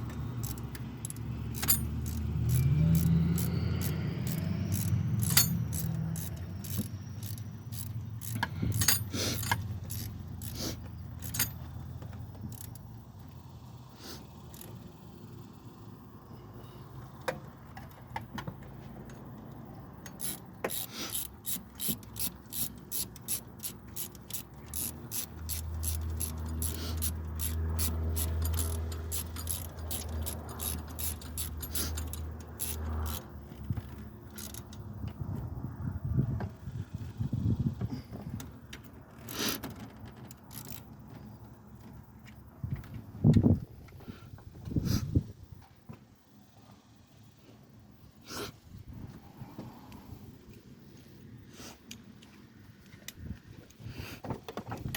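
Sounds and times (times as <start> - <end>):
ratchet wrench clicking: 0.0 - 13.0, 14.4 - 15.1, 19.5 - 35.0, 38.6 - 41.0
metallic clinks of tools: 0.4 - 12.9, 20.0 - 34.8.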